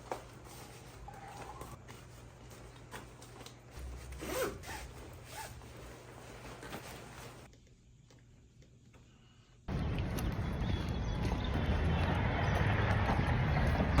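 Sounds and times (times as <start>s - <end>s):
zipper being pulled: 3.9s - 6.8s.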